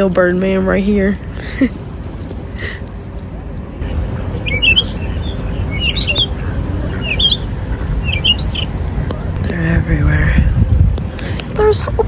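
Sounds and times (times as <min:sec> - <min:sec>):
steady low rumble: 0:00.0 - 0:12.0
small bird chirping: 0:04.3 - 0:08.8.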